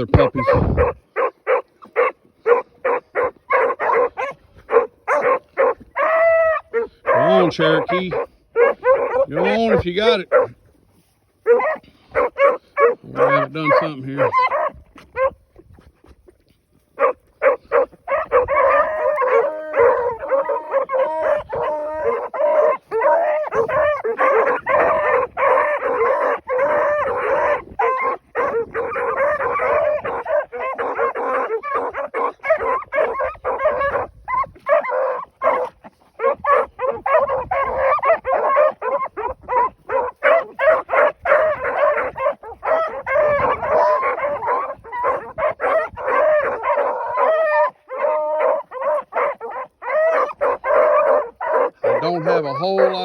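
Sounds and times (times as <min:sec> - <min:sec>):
hounds baying: 0:00.0 - 0:53.0.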